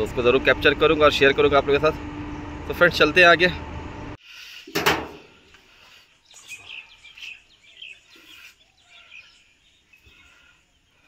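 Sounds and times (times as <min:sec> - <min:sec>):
small birds chirping faintly: 0:05.4 - 0:11.0.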